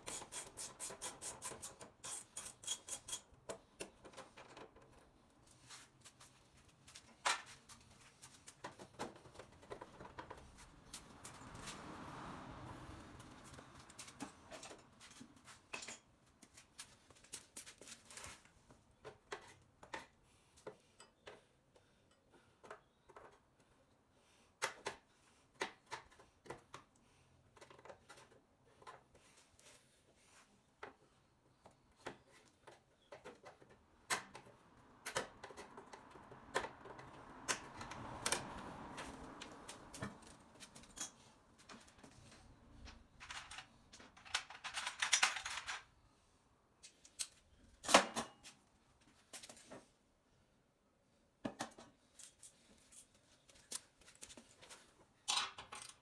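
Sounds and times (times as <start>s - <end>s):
hand tools clicking and knocking: 0.0s - 5.0s, 32.0s - 45.9s.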